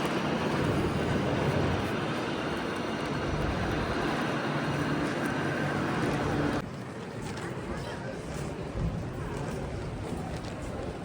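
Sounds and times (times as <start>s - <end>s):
vehicle rumble and hiss: 0.0s - 7.0s.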